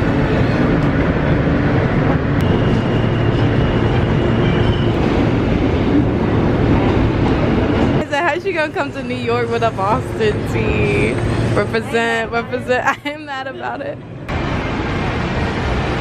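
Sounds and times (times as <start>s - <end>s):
vehicle rumble: 0.0s - 16.0s.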